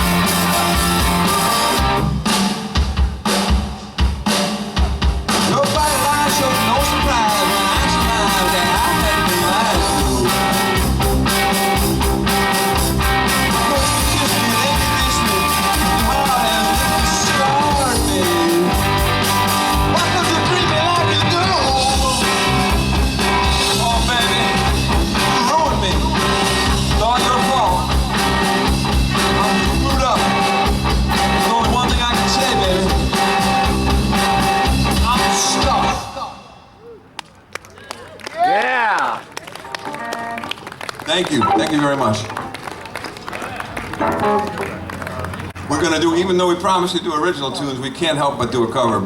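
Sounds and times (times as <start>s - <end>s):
rock band playing live: 0.0s - 36.7s, 39.5s - 45.7s
person singing: 5.5s - 10.6s, 13.4s - 19.0s, 26.9s - 33.0s.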